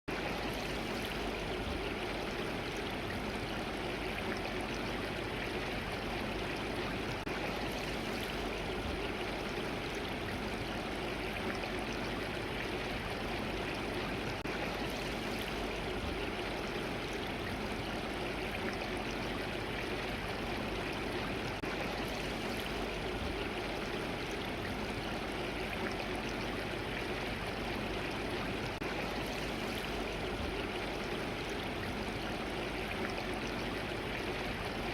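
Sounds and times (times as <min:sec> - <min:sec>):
stream water flowing over rocks: 0:00.1 - 0:34.9.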